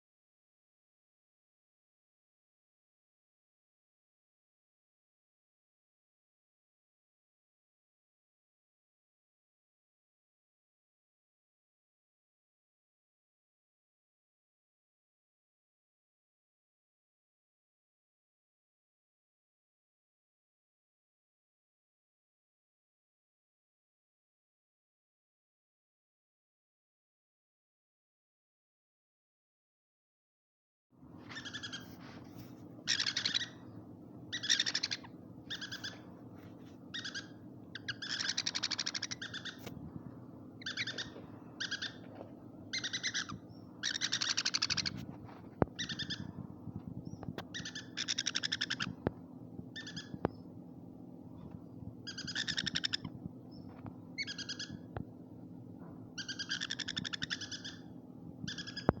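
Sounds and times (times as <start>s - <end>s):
steady low hum: 31.0s - 59.0s
birds screeching: 31.2s - 32.0s, 32.8s - 36.2s, 36.8s - 39.7s, 40.5s - 45.0s, 45.7s - 46.4s, 47.1s - 49.1s, 49.7s - 50.5s, 52.0s - 54.9s, 56.2s - 59.0s.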